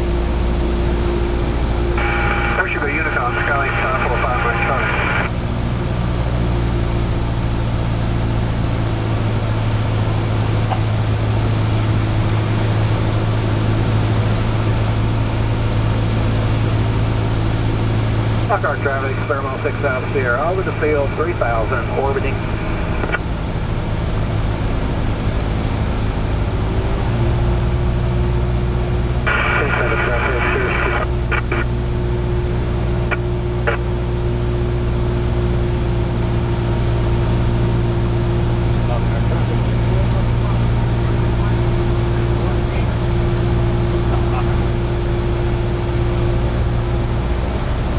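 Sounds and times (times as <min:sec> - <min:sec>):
aircraft engine droning in cabin: 0:00.0 - 0:47.9
air noise: 0:02.0 - 0:05.3, 0:18.5 - 0:24.0, 0:29.2 - 0:31.8.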